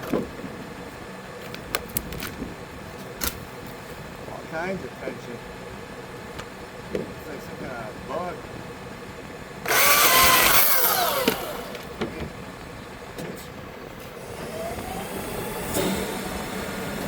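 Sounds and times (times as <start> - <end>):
small chainsaw revving: 9.6 - 12.0.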